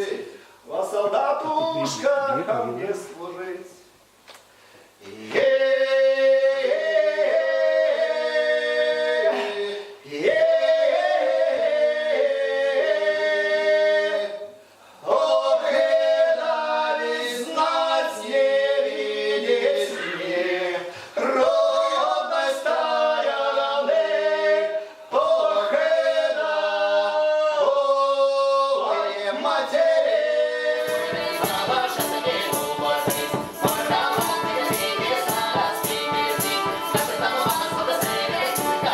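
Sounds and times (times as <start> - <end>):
folk ensemble singing a cappella: 5.0 - 38.9
rattling percussion beat: 30.8 - 38.9.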